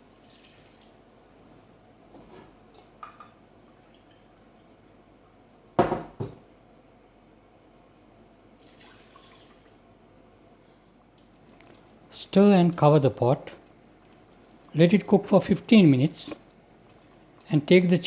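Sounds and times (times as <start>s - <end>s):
water pouring into cooking pot: 0.0s - 0.9s, 8.6s - 9.8s.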